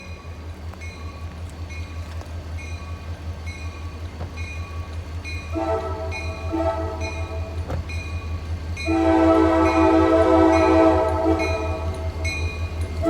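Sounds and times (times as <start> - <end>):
diesel locomotive engine rumble: 0.0 - 13.0
locomotive bell ringing: 0.0 - 13.0
locomotive air horn chord: 5.5 - 7.6, 8.8 - 12.4.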